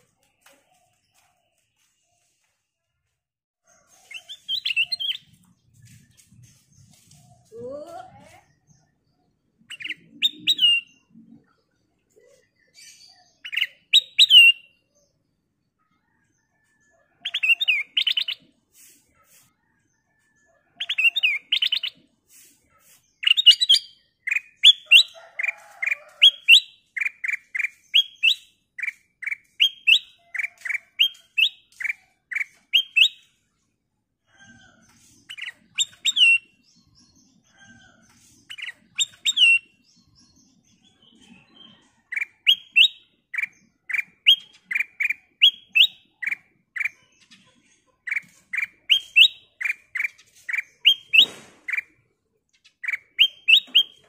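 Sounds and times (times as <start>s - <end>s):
bird singing chirping phrases: 4.2s - 15.2s, 17.2s - 18.5s, 20.8s - 22.0s, 35.3s - 52.0s, 52.6s - 54.0s.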